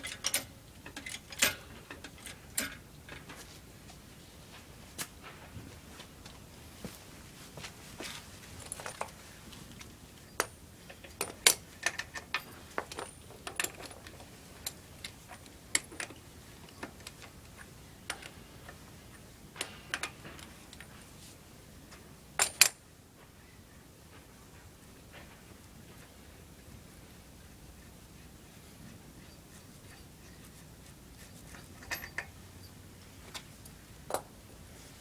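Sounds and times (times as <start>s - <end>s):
metallic clicks and clinks: 0.0s - 2.8s, 10.3s - 18.8s, 31.5s - 34.3s.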